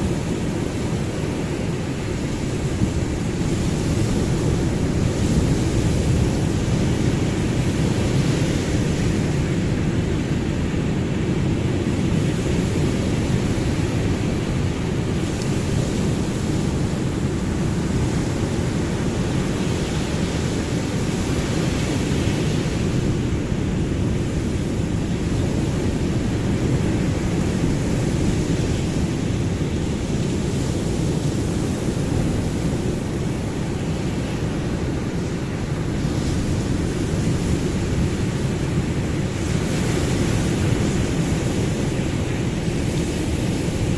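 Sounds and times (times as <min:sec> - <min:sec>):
deep rumble of surf: 0:00.0 - 0:43.9
hiss of breaking waves: 0:00.0 - 0:43.9.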